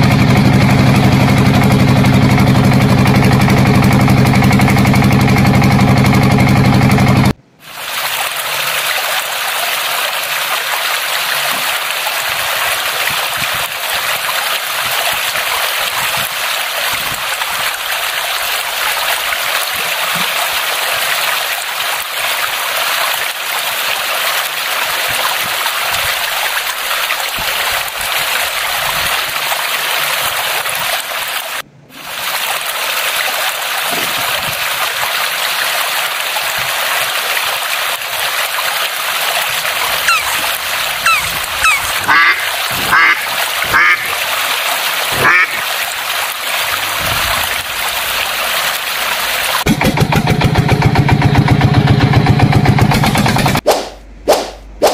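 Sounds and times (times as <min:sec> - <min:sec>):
rushing water: 0:00.0 - 0:49.7.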